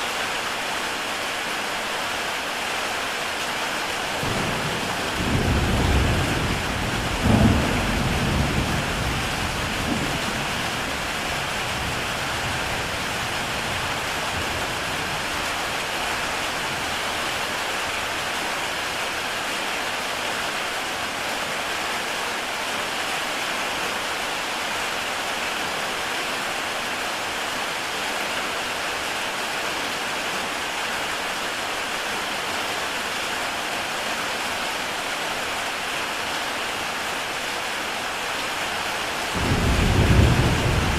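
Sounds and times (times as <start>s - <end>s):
heavy rain on a tile roof: 0.0s - 40.9s
thunder rumble: 4.2s - 15.9s, 39.3s - 40.9s.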